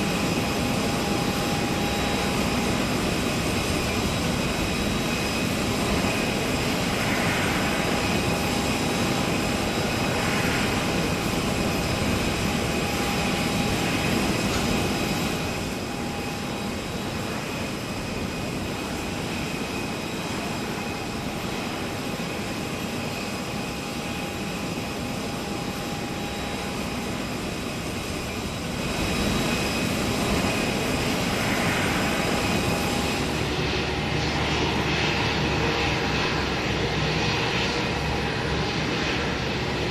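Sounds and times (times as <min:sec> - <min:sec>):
jet engines running with whine: 0:00.0 - 0:39.9.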